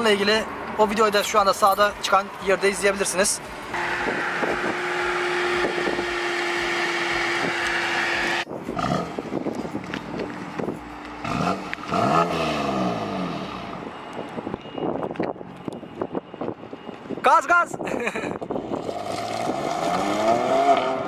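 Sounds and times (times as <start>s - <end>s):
car running with held tone: 3.7s - 17.1s
car engine revving: 3.8s - 9.5s, 11.1s - 13.9s, 18.8s - 21.0s.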